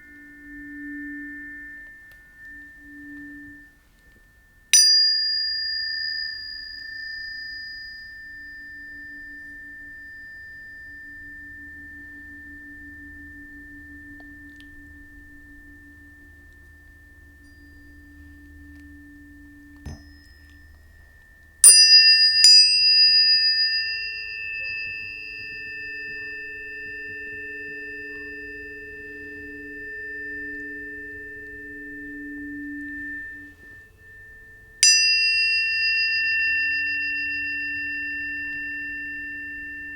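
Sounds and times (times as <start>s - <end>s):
tuning fork ringing: 0.0s - 39.9s
tuning fork struck: 0.0s - 39.9s
faint low tones: 23.2s - 34.9s.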